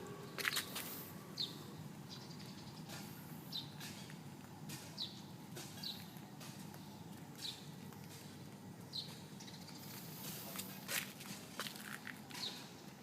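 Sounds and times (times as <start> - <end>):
bird chirping: 0.6 - 3.9, 4.9 - 7.8, 8.8 - 10.1.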